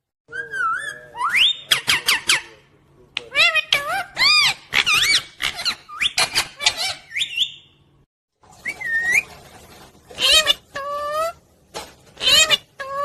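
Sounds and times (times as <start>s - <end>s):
parrot chirps and squawks: 0.4s - 2.6s, 3.2s - 7.7s, 10.1s - 11.4s, 12.1s - 13.0s.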